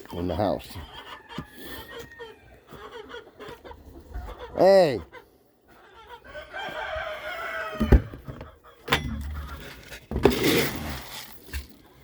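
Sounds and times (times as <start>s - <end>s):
chickens clucking: 0.0s - 10.1s
rooster crowing: 6.3s - 8.1s.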